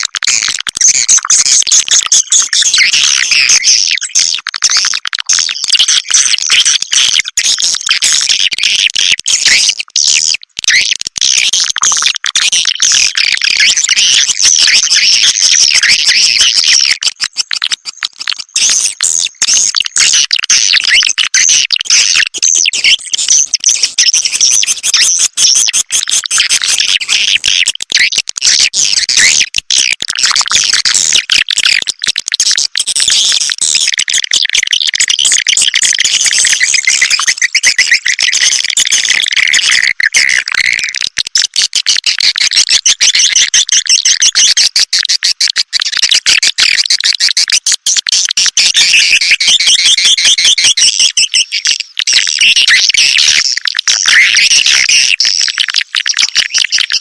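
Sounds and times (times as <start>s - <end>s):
swiftlets chirping and twittering: 13.8s - 28.1s, 35.3s - 40.8s.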